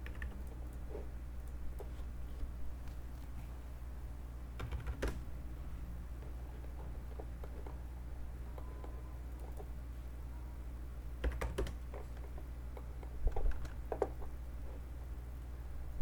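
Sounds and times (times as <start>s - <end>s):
keyboard typing clicks: 0.0s - 0.8s
steady low hum: 0.0s - 16.0s.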